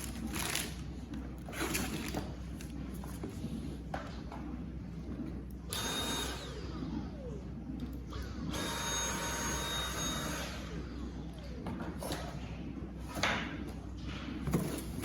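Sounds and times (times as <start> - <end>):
vacuum motor whining: 5.7 - 12.2.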